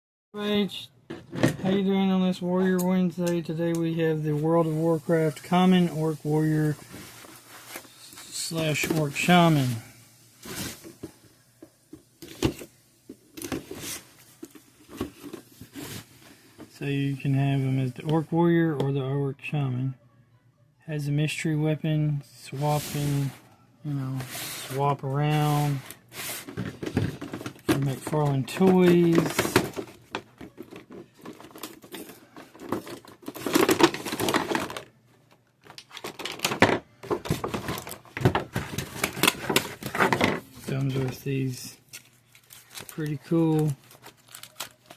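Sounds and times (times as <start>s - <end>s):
packaging rustling: 25.4s - 44.9s.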